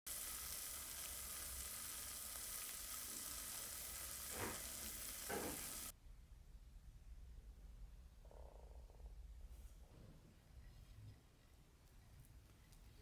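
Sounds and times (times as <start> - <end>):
food sizzling in a frying pan: 0.1 - 5.9.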